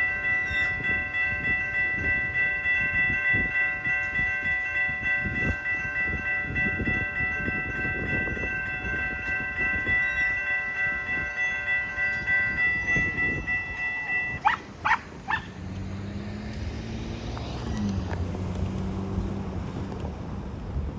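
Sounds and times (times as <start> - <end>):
railroad crossing bell ringing: 0.0 - 15.4
locomotive low hum: 13.2 - 20.9.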